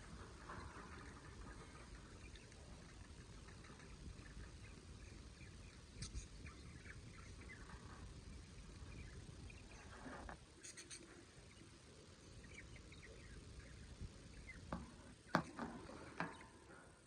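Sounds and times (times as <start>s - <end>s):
budgerigars chirping: 4.2s - 7.7s, 10.6s - 11.1s.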